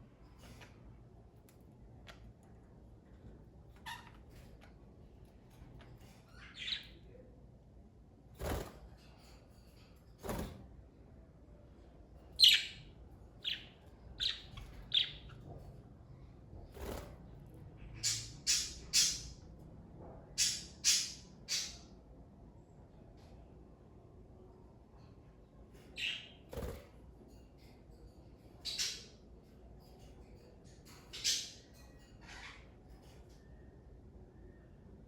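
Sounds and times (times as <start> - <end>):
budgerigars chirping: 13.4 - 15.3.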